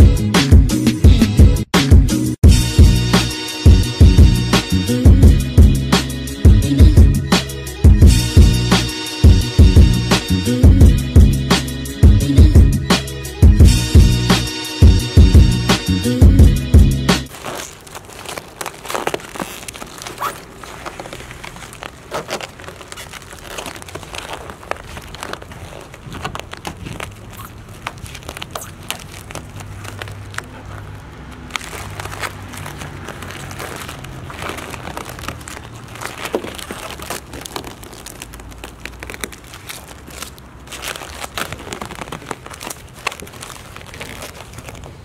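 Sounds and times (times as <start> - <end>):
vinyl wrap crackling as peeled: 17.2 - 45.0.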